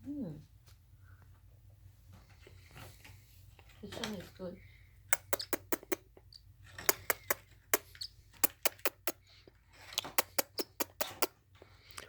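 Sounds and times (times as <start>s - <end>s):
sharp irregular clicks and taps: 5.2s - 6.0s, 6.8s - 9.2s, 10.0s - 11.3s.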